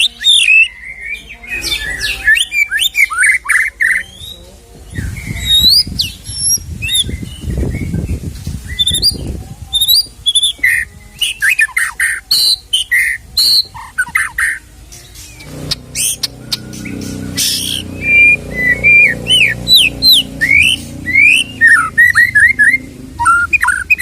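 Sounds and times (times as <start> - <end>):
bird singing whistled song: 0.0 - 24.0
low rumbling noise: 14.7 - 24.0.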